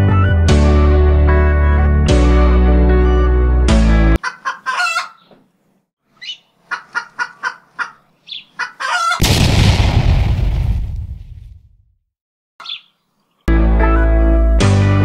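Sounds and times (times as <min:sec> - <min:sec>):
background music: 0:00.0 - 0:04.2, 0:13.5 - 0:15.0
clucking bird-like calls: 0:04.2 - 0:05.4, 0:06.1 - 0:09.2, 0:12.6 - 0:12.9.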